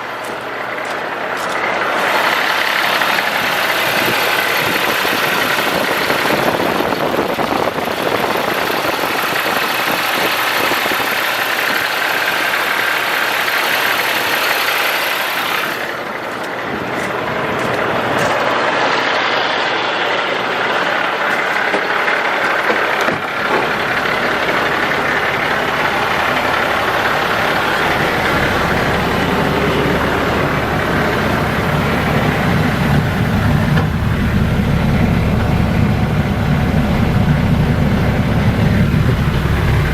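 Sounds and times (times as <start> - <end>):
diesel engine idling: 0.0 - 39.9
deep low rumble: 15.8 - 39.9.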